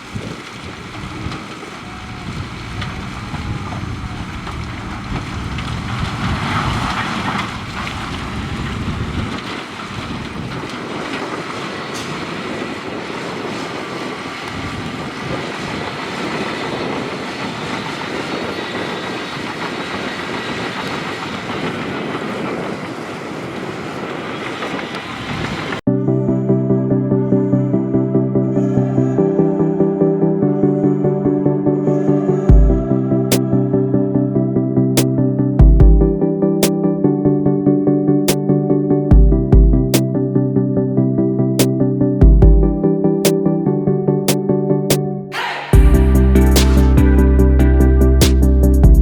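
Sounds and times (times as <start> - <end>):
bulldozer diesel engine: 1.6 - 10.4, 45.7 - 49.0
metallic track clatter: 2.4 - 23.0.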